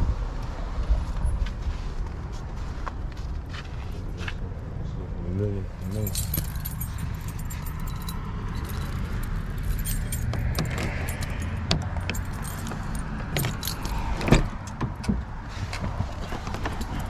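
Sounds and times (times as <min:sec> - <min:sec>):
keys jingling: 0:05.8 - 0:15.1, 0:15.9 - 0:17.0.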